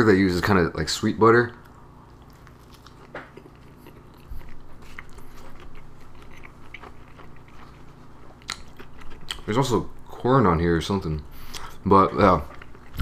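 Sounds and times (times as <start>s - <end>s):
wet mouth clicks chewing: 1.6s - 9.5s
toasted bread crunching: 2.1s - 9.7s.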